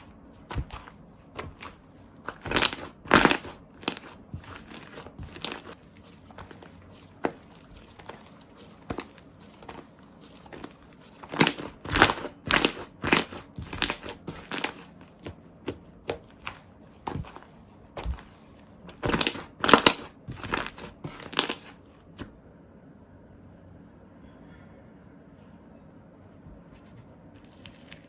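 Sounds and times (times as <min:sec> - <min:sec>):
slime squishing by hand: 0:00.0 - 0:22.3, 0:26.8 - 0:28.0.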